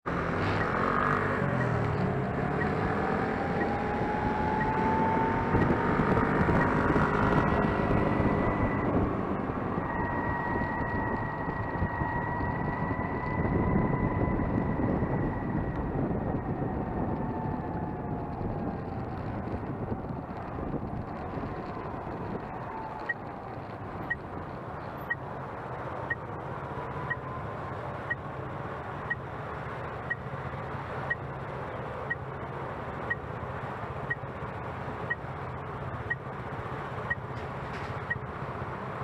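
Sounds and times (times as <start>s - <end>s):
tyre and road noise: 0.0s - 39.0s
wind rushing over microphone: 0.2s - 28.1s.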